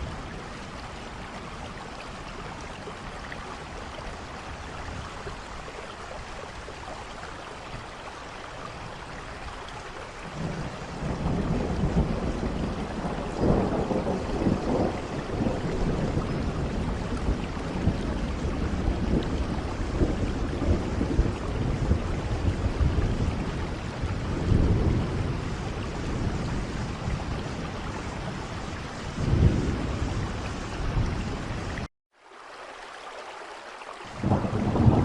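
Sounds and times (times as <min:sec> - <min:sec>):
heavy rain: 0:00.0 - 0:35.0
thunder rumbling: 0:10.3 - 0:31.9, 0:34.1 - 0:35.0.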